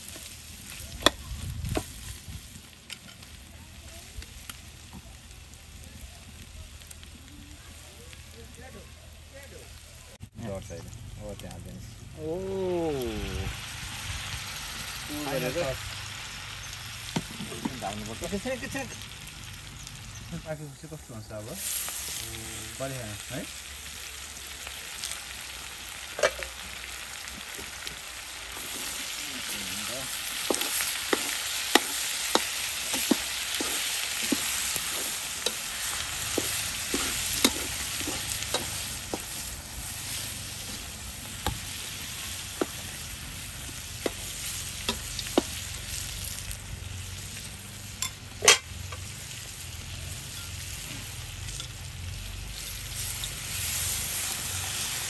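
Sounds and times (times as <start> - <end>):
food sizzling in a pan: 0.0 - 55.0
utensil scraping a pan: 30.4 - 39.4.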